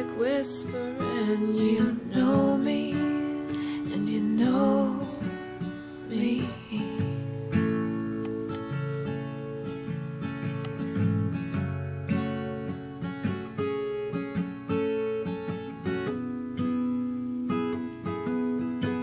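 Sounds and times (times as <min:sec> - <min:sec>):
woman singing without words: 0:00.0 - 0:07.4
acoustic guitar strumming: 0:00.0 - 0:19.0.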